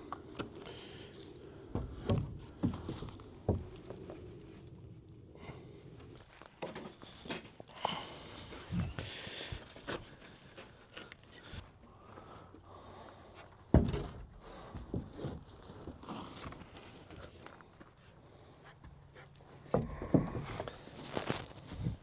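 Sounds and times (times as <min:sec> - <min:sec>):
knocks and thumps on wood frame: 0:13.7 - 0:15.1, 0:19.7 - 0:20.7.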